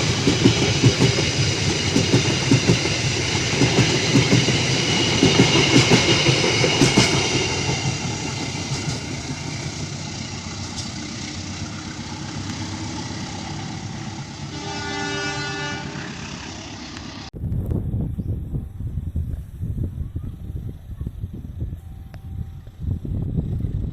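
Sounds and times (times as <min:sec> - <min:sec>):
train rolling on rails: 0:00.0 - 0:17.4
locomotive horn: 0:14.2 - 0:17.0.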